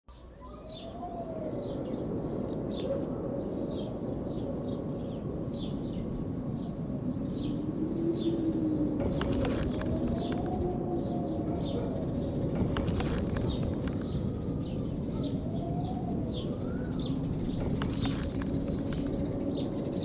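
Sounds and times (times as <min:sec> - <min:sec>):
songbird chirping: 0:12.6 - 0:14.4, 0:17.6 - 0:19.6.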